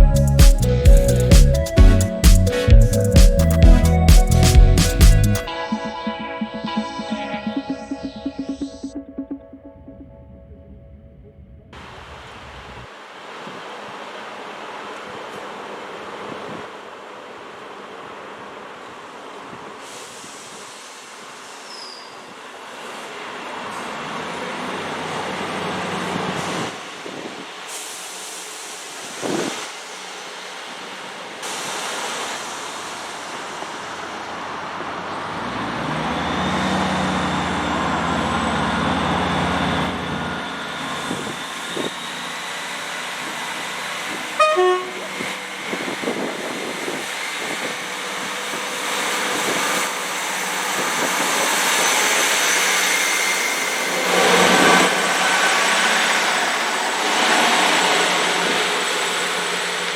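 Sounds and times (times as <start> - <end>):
train engine drone: 0.0 - 59.9
train horn toot: 44.4 - 45.3.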